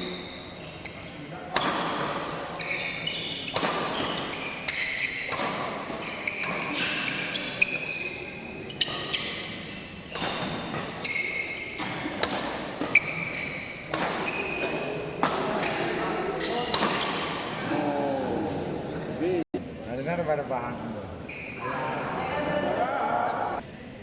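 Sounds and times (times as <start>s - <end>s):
sneakers squeaking on court: 0.0s - 17.7s, 21.3s - 22.6s
racket hitting shuttlecock: 1.5s - 7.9s, 8.8s - 17.5s
murmur of spectators: 14.5s - 24.0s.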